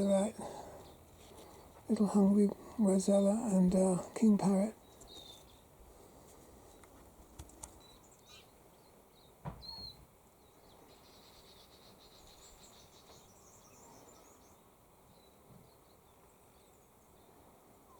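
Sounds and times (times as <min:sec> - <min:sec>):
faint high bird chirps: 0:07.8 - 0:17.9
soft knock: 0:09.4 - 0:09.9.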